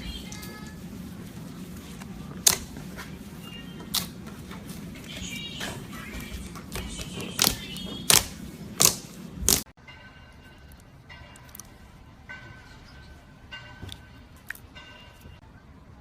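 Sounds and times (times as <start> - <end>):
slime popping and crackling: 7.4 - 9.6.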